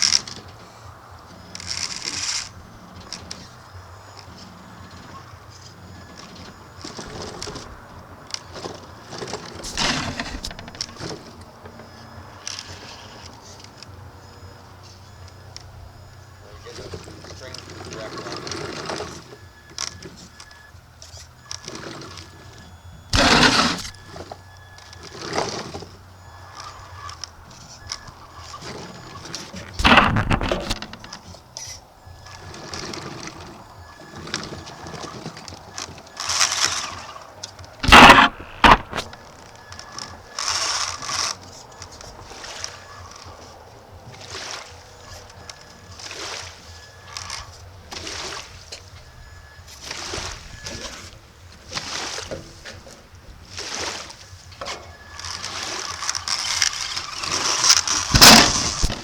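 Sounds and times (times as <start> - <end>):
loud sharp knocks: 37.8 - 39.2.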